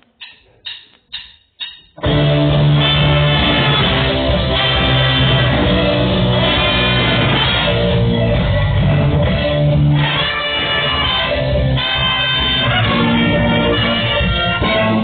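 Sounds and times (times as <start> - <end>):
count-in clicks: 0.0 - 2.0
loud rock band playing: 2.0 - 15.0.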